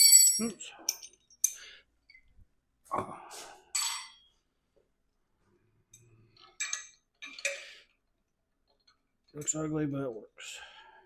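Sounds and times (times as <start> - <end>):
metal hardware clinking: 6.4 - 7.6.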